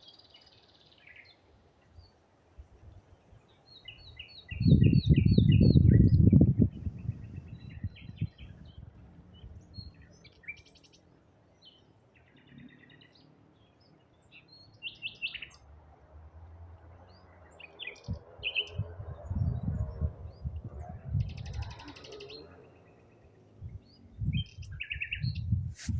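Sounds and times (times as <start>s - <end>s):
songbirds chirping: 0.0s - 25.9s.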